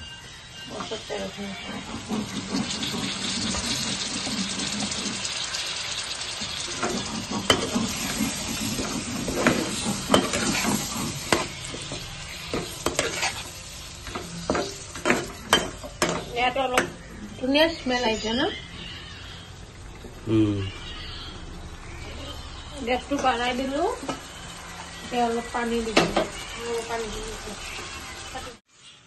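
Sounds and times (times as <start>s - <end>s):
fish sizzling in hot oil: 0.6s - 20.2s, 21.4s - 29.0s
spatula scraping and knocking pan: 0.7s - 5.4s, 6.4s - 17.2s, 25.8s - 26.4s.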